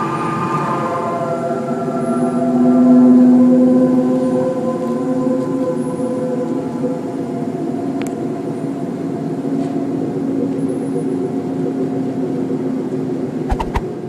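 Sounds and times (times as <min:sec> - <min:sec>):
sharp clicks: 0:13.5 - 0:13.9.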